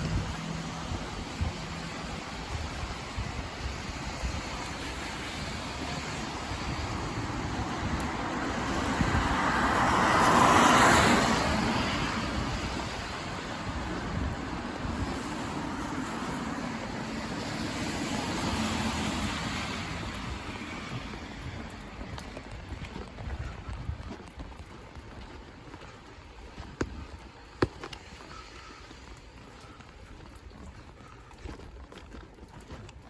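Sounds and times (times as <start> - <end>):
road traffic hiss: 0.0 - 22.2
vehicle passing: 5.2 - 13.2.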